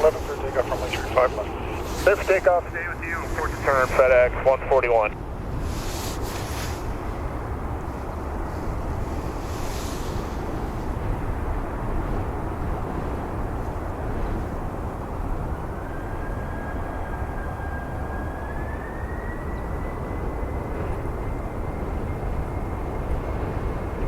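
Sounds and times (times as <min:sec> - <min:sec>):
jet engines rumbling and whining: 0:00.0 - 0:24.0.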